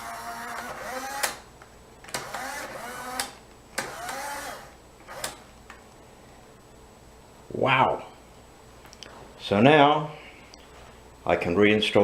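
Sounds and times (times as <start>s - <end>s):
small electric motor whirring: 0.0s - 1.4s, 2.1s - 5.4s.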